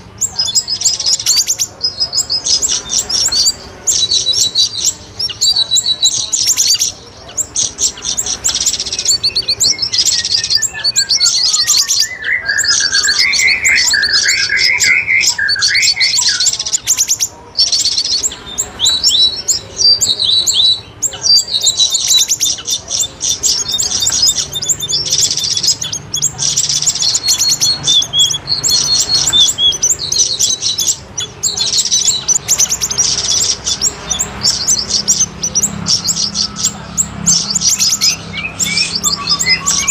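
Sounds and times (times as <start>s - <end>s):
high chirping bird trills: 0.0s - 39.9s
lower warbling bird song: 0.0s - 39.9s.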